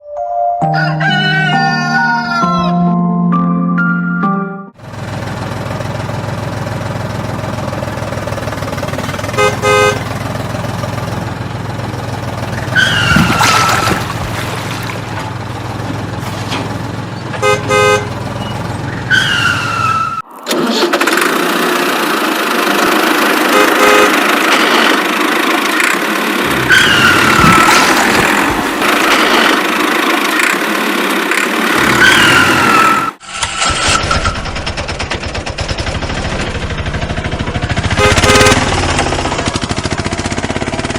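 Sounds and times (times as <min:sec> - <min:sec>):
engine running: 0:04.7 - 0:40.9
short horn beeps: 0:09.4 - 0:10.1, 0:38.0 - 0:38.8.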